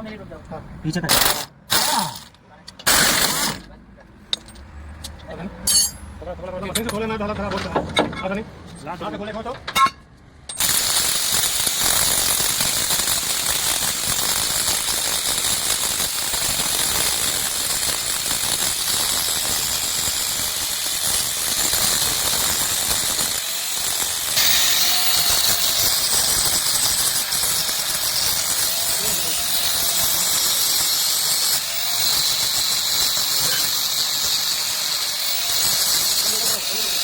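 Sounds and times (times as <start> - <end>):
pneumatic impact wrench rattling: 1.1 - 3.7, 10.5 - 37.0.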